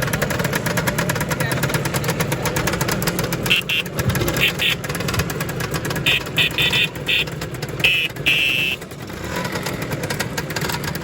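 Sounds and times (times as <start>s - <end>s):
scooter engines running: 0.0s - 11.0s
buzzy scooter horn beeps: 3.4s - 5.0s, 6.0s - 9.0s.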